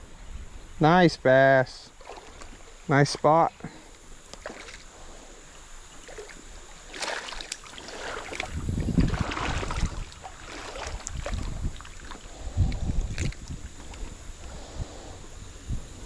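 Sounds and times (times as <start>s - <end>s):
water splashing in a creek: 1.9s - 3.3s, 4.0s - 15.2s
wind buffeting microphone: 7.8s - 16.0s.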